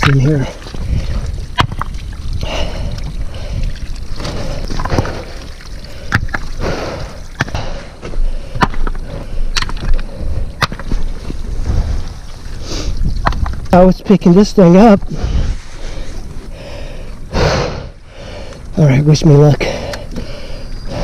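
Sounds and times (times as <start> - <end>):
water sloshing: 0.0 - 7.7
rocks knocking together: 0.0 - 11.8, 13.0 - 13.8.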